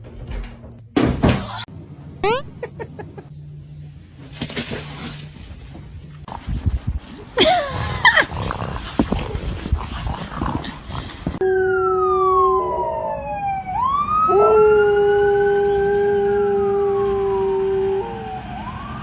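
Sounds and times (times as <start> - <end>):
siren wailing: 2.2 - 2.5, 11.4 - 19.0
scuffling clatter: 3.7 - 6.9
dog howling: 14.3 - 18.3.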